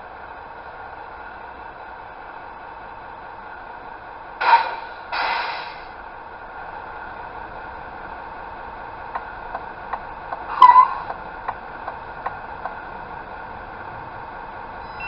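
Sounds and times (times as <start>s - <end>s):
short hisses from speaker: 4.4s - 5.9s
light ticking: 9.1s - 12.8s.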